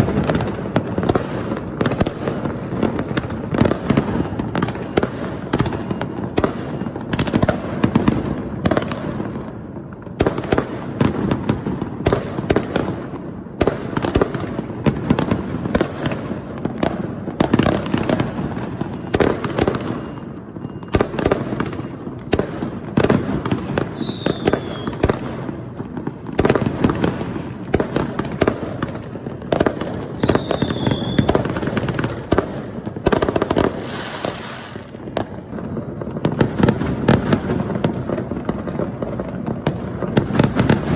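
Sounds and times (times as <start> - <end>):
falling firework whistle: 0.0 - 11.1, 17.3 - 25.5, 26.4 - 38.6
firecrackers crackling: 0.0 - 40.9.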